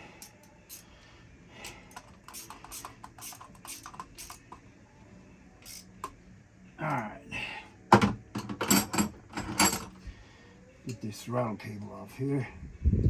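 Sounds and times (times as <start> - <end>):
metallic clicks and taps of hand tools: 1.9 - 4.6.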